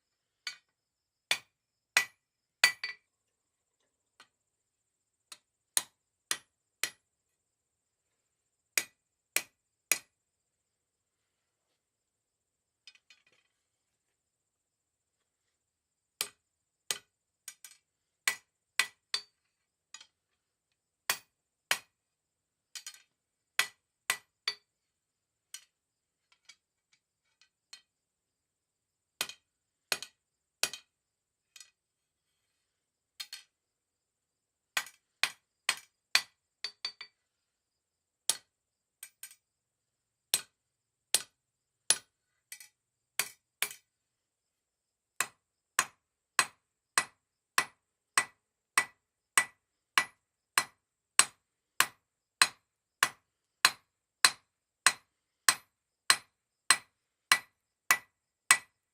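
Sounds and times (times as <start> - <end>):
hammer striking steel on anvil: 45.2 - 58.7.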